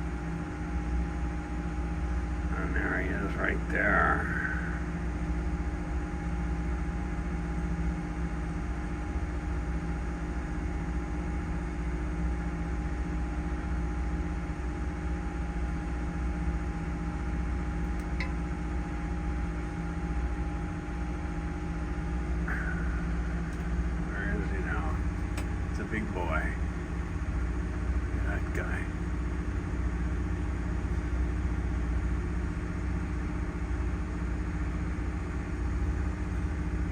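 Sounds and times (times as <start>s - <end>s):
boat engine droning: 0.0s - 6.0s, 16.6s - 36.9s
engine whine: 0.0s - 36.9s.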